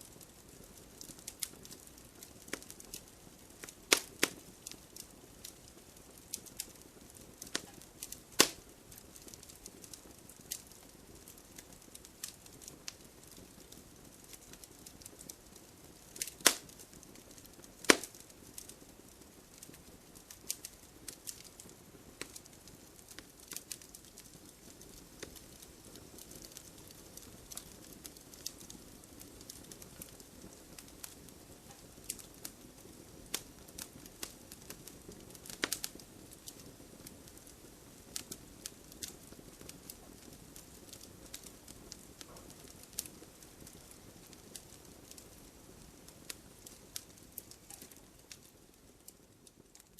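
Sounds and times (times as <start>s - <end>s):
wood fire crackling and popping: 0.0s - 49.9s
fire hissing: 3.6s - 11.2s, 15.9s - 18.7s.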